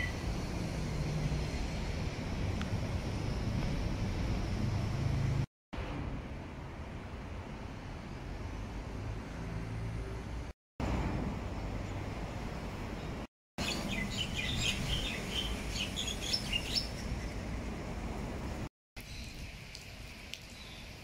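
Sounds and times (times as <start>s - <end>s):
small birds chirping: 13.0s - 17.6s, 19.0s - 21.0s.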